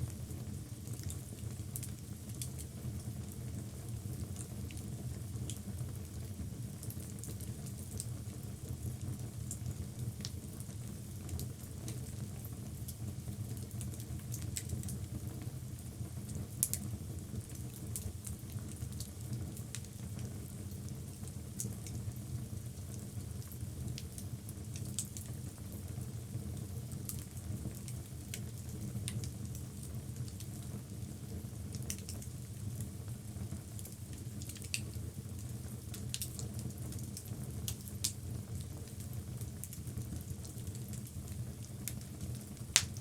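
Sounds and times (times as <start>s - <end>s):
fire crackling and popping: 0.0s - 43.0s
low rumble of flames: 0.0s - 43.0s.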